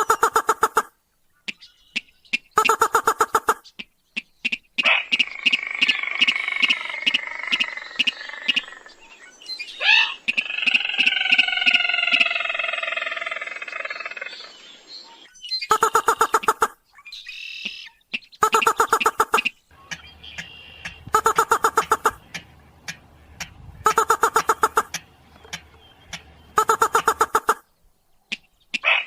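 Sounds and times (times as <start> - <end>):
harsh chattering bird calls: 1.4 - 29.0
churring bird call: 4.2 - 14.8, 15.6 - 27.6
crake calls: 4.2 - 14.9, 15.6 - 27.7.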